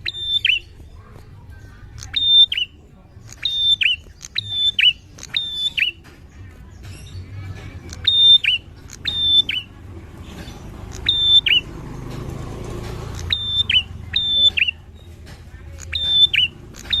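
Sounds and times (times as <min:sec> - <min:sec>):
bird whistled calls: 0:00.0 - 0:00.9, 0:02.0 - 0:06.1, 0:07.9 - 0:09.8, 0:10.9 - 0:11.8, 0:13.1 - 0:15.2, 0:15.8 - 0:17.0.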